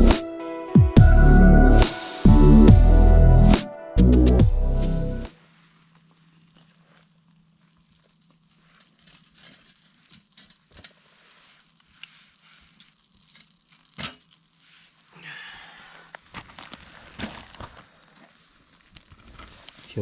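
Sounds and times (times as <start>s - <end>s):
clicks and rustling of handling: 6.0s - 11.1s.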